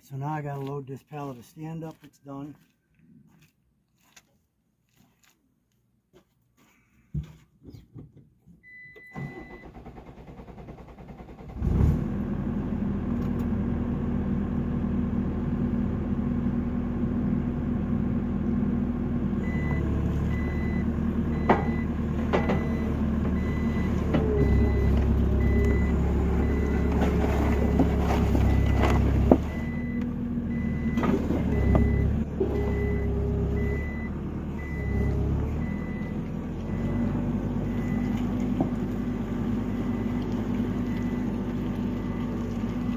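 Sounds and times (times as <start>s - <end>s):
backup alarm beeping: 8.6s - 9.8s, 19.4s - 27.0s, 27.6s - 37.0s, 37.6s - 38.2s
diesel engine working under load: 8.7s - 42.9s.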